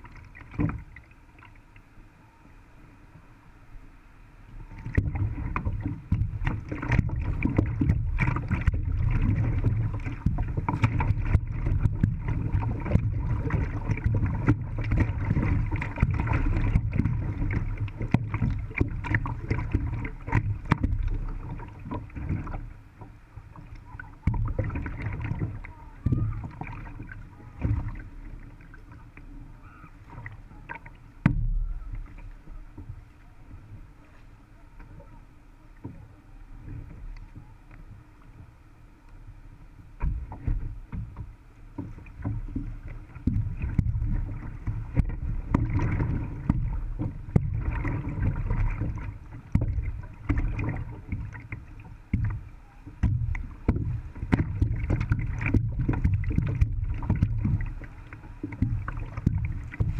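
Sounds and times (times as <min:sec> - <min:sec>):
paddle knocks and splashes: 0:00.0 - 0:01.6, 0:04.6 - 0:38.6, 0:39.2 - 0:59.9.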